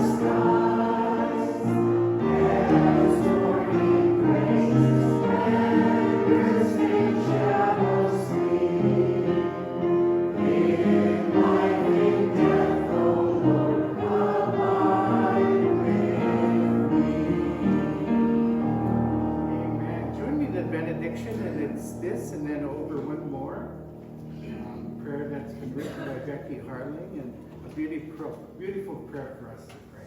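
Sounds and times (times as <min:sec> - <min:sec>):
choir singing a hymn: 0:00.0 - 0:21.3.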